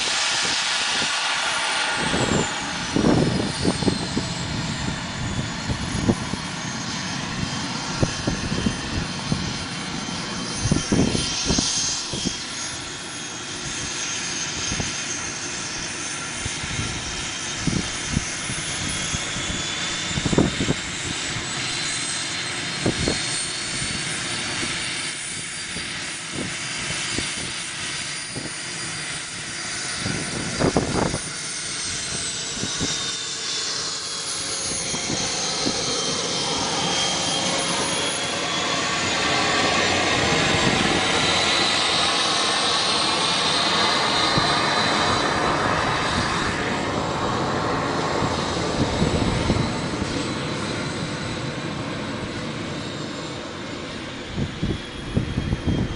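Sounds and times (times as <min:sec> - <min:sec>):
model jet engine whine: 0:00.0 - 0:55.9.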